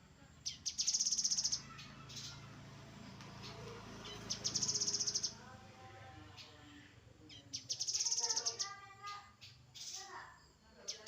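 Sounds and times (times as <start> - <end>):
bird high trill: 0.5 - 2.5, 3.4 - 5.4, 7.4 - 10.1.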